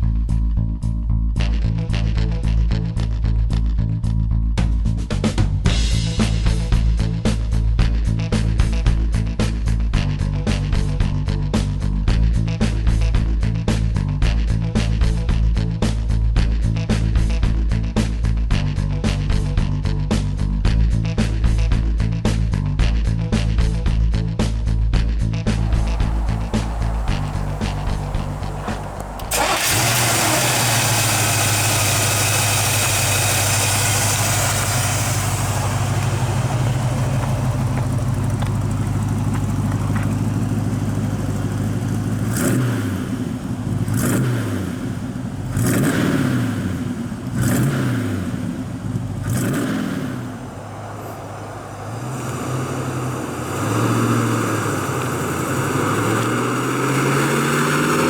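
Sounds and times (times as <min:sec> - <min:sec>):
car engine running and revving: 0:25.4 - 0:58.0.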